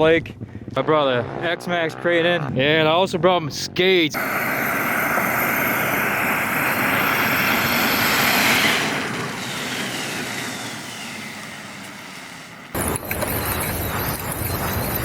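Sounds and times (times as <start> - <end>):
electric motor whining: 4.2 - 15.0.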